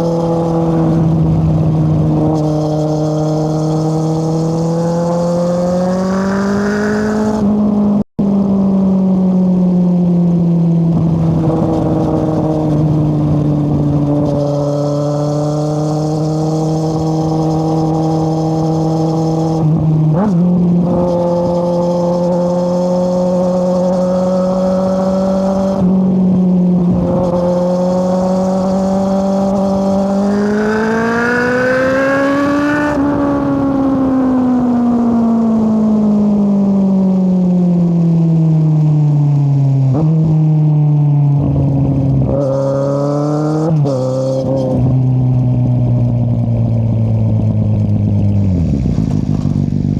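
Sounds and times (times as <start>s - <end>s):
motorcycle engine revving: 0.0s - 8.1s, 26.9s - 36.5s.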